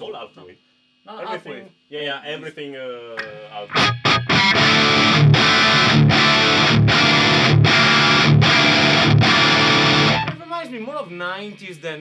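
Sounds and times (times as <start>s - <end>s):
distorted electric guitar chords: 3.2s - 10.4s.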